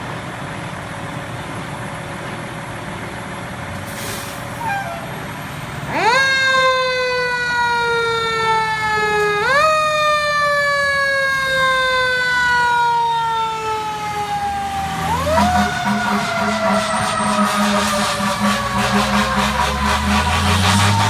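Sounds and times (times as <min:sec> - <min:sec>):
truck engine rumble: 0:00.0 - 0:21.0
fire engine siren wailing: 0:04.6 - 0:21.0.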